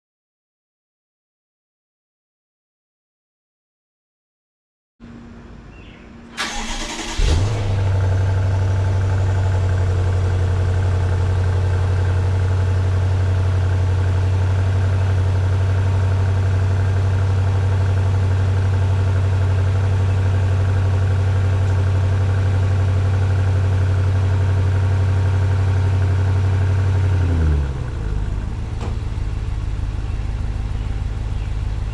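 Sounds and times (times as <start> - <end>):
car engine idling: 6.3 - 31.9
engine cranking: 6.4 - 8.0.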